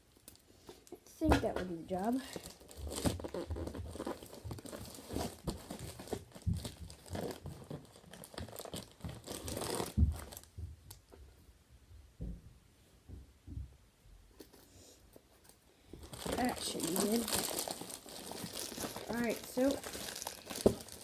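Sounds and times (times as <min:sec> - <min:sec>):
cardboard packaging tearing: 0:02.4 - 0:10.4, 0:16.0 - 0:21.0.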